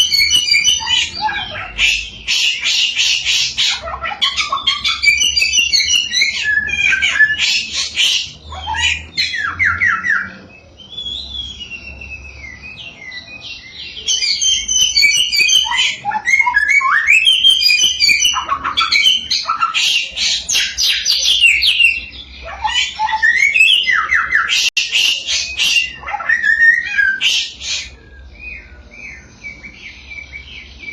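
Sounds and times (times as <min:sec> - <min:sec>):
songbird singing trills and whistles: 0:00.0 - 0:30.9.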